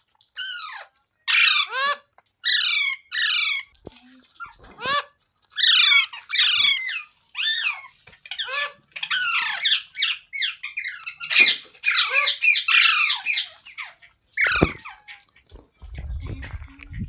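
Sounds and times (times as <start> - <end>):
parakeet shrill calls: 0.4 - 3.7, 4.8 - 15.1.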